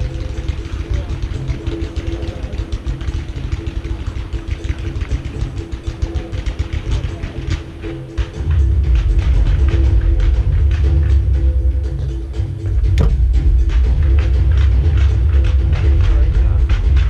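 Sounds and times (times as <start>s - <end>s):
music with held notes: 0.0s - 17.0s
low booming rumble: 12.6s - 17.0s.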